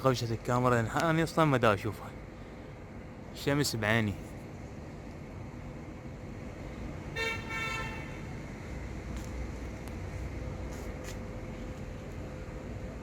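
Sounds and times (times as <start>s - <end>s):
vehicle horn honks: 7.2s - 8.2s.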